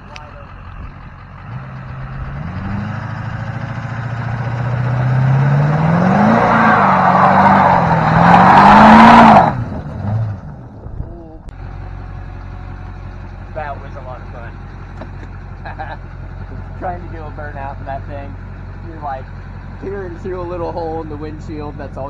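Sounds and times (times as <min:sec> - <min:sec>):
tyres spinning: 0:00.0 - 0:10.5
diesel engine revving: 0:00.0 - 0:22.0.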